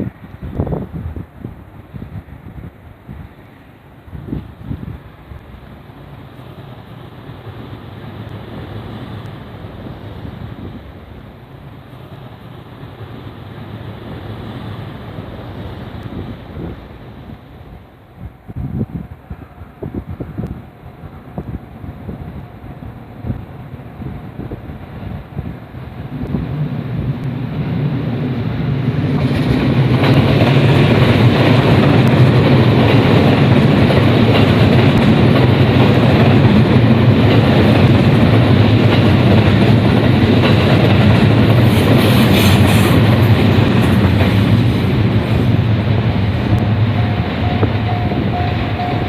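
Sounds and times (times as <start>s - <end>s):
train wheels clattering on rails: 24.0s - 49.0s.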